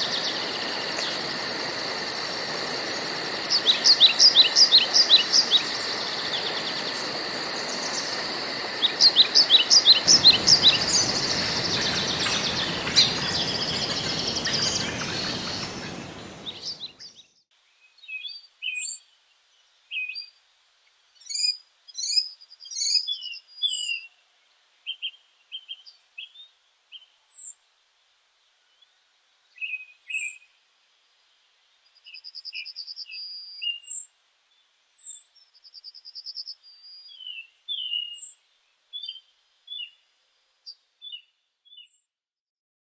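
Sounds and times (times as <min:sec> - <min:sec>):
steady background hiss: 0:00.0 - 0:41.2
birds singing: 0:03.3 - 0:19.0, 0:35.0 - 0:40.0.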